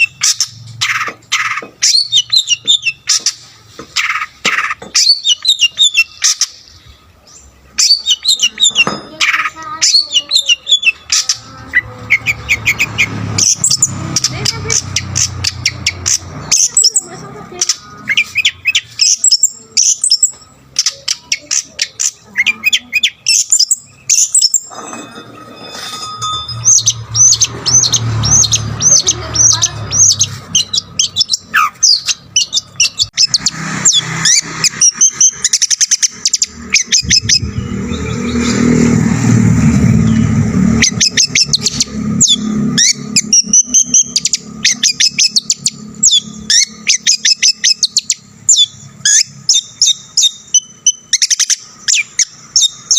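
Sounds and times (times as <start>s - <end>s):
bird singing chirps and trills: 0.0s - 52.9s
low rumble: 36.9s - 42.8s.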